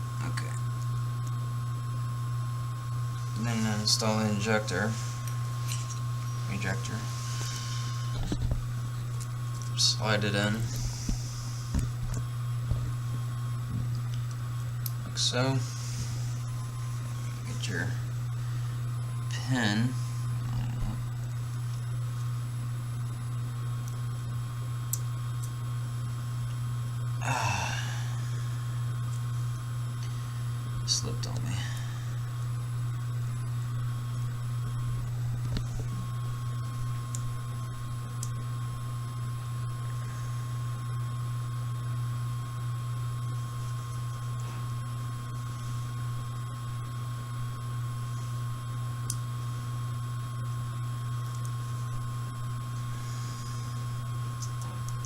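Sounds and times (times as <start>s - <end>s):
laundry machine humming: 0.0s - 24.9s, 25.7s - 55.0s
high-pitched whine: 3.1s - 9.0s.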